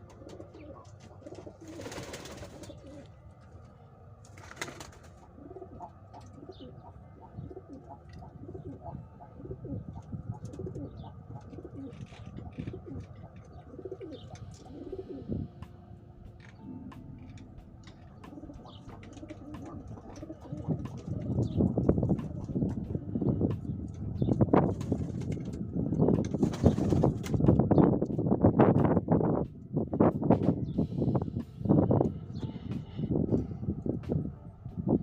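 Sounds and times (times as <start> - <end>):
pigeons cooing: 0.0 - 3.7, 4.3 - 27.8.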